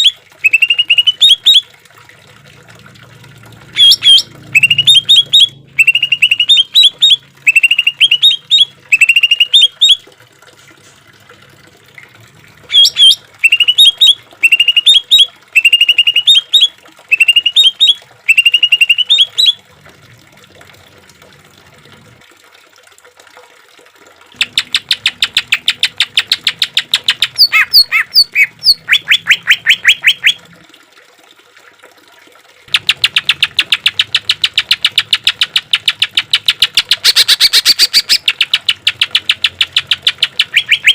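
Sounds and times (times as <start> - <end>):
bird whistling phrases: 0.0 - 1.6, 3.8 - 10.0, 12.7 - 19.6, 27.4 - 30.4, 40.3 - 40.9
bird harsh repeated notes: 3.8 - 10.0, 12.7 - 19.6, 24.4 - 30.4, 32.7 - 40.9.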